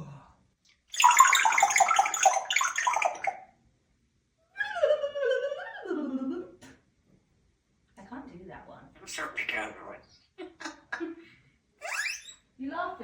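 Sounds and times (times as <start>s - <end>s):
parrot gurgling chatter: 9.0s - 10.0s, 11.8s - 12.4s
parrot call sliding down: 11.8s - 12.4s.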